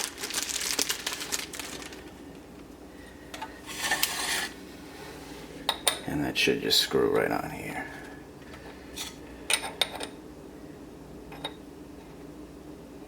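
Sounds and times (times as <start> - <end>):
rustling: 0.0 - 2.3.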